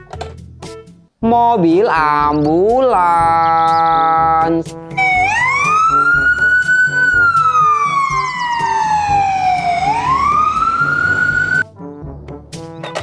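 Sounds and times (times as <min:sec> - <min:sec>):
ambulance siren wailing: 0:05.0 - 0:11.6.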